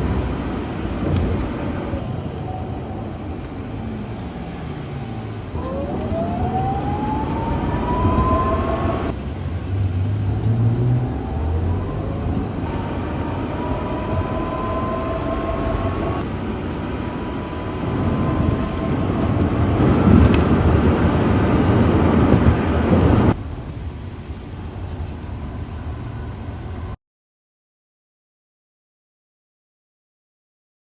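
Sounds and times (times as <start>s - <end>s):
road and running noise: 0.0s - 27.0s
electric motor whine: 5.6s - 9.2s, 10.3s - 23.4s.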